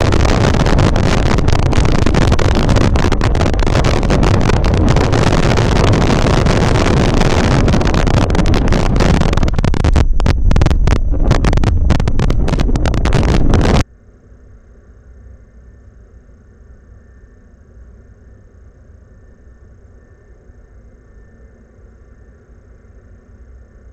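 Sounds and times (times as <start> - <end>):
strong wind buffeting microphone: 0.0 - 13.8
faint low hum: 0.0 - 23.9.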